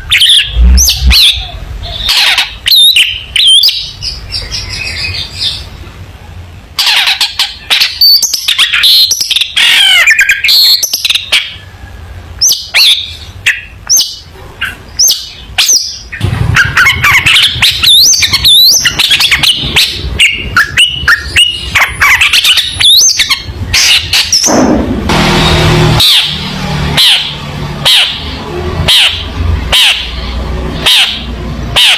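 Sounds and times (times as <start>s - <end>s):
bird singing chattering notes: 12.4s - 24.7s.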